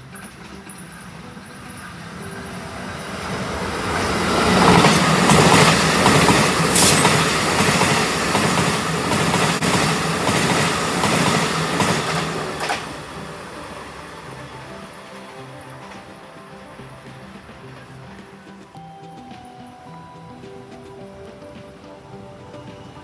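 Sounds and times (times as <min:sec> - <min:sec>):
wheels clattering over rail joints: 0:00.0 - 0:18.8
train rumbling past: 0:00.0 - 0:18.9.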